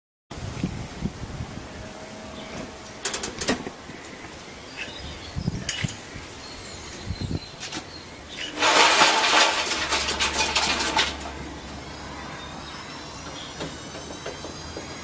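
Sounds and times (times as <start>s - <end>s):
clattering crash with clinks: 8.5s - 11.5s.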